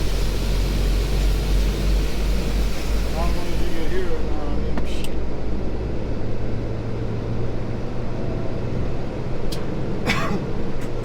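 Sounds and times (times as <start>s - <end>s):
air hiss: 0.0s - 4.4s
diesel truck running: 0.0s - 11.0s.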